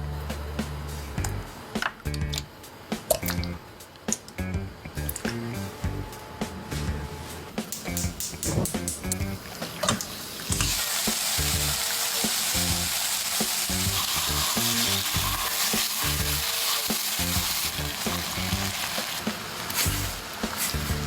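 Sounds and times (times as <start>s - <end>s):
meat sizzling in a pan: 9.6s - 21.0s.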